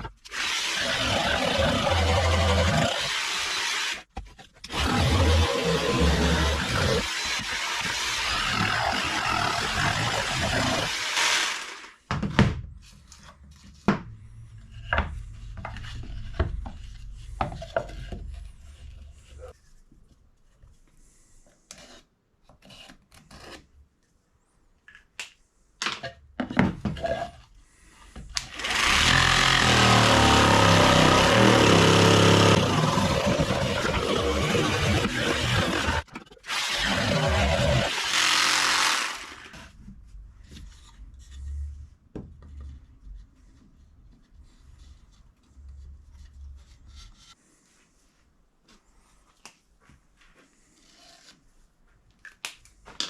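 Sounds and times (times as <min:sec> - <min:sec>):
power tool running: 0:00.3 - 0:04.0, 0:04.7 - 0:11.9, 0:28.4 - 0:39.6.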